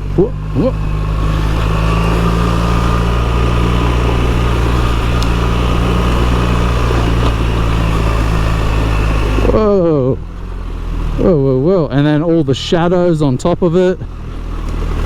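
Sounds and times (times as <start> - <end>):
tyre noise: 0.0 - 10.2
motorcycle engine running: 0.0 - 15.0.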